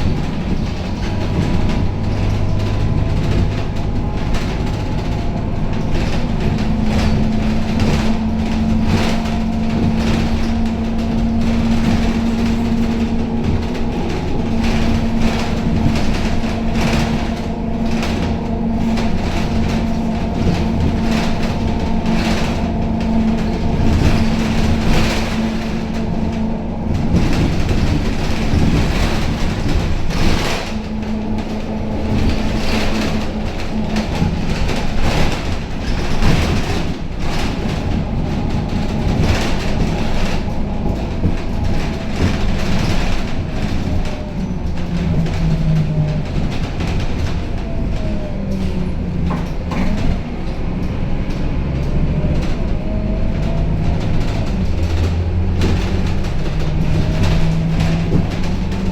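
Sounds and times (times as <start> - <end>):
bus body rattling: 0.0 - 58.9
bus engine drone: 0.0 - 58.9.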